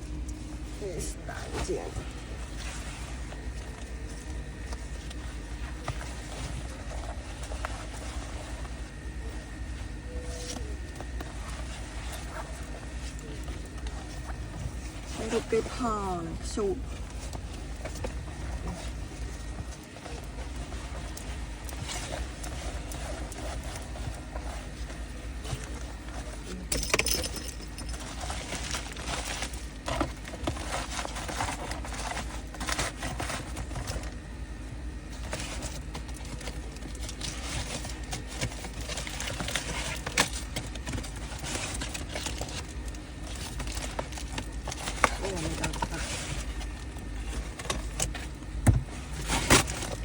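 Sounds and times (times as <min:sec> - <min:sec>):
steady low hum: 0:00.0 - 0:50.0
small objects clicking and rattling: 0:26.7 - 0:29.4.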